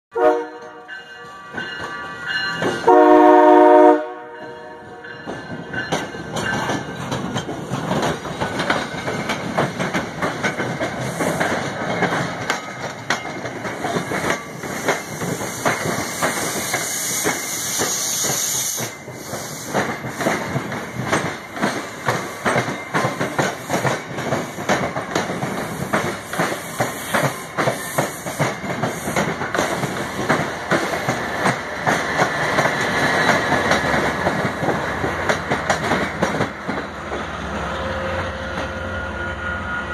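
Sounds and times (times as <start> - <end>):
train horn blast: 0.1 - 1.0, 2.8 - 5.0, 37.7 - 39.9
wheels clacking over rail joints: 0.6 - 3.1, 5.1 - 37.8.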